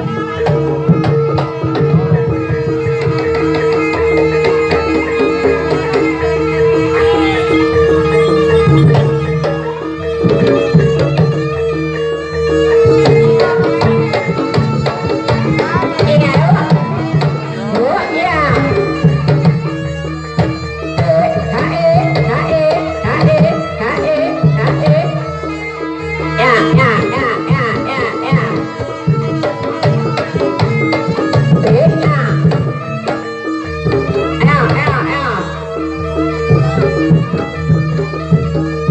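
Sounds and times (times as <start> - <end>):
hand drum strokes: 0.0 - 11.6
wavering melody line: 2.2 - 20.0
held pitched tones: 4.4 - 18.8
repeating pitched notes: 5.1 - 18.8.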